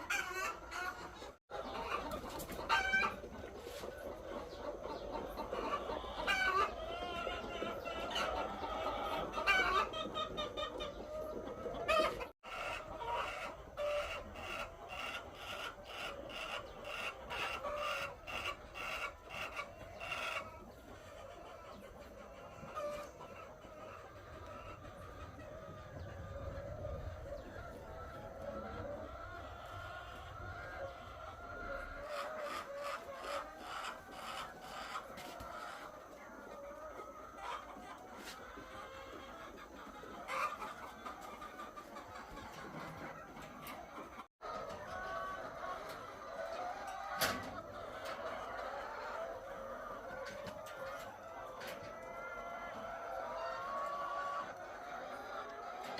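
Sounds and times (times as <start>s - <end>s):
hens clucking: 0.0s - 55.9s.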